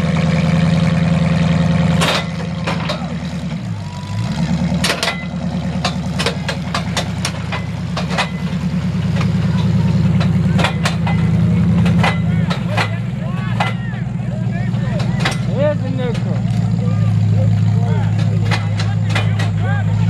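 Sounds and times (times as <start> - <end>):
truck engine rumbling: 0.0 - 20.0.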